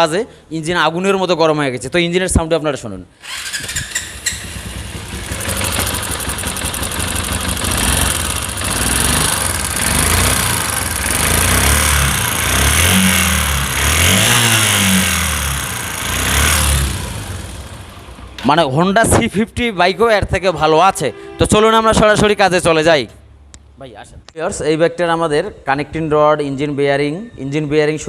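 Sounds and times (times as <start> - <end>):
motorcycle engine revving: 3.2 - 18.4.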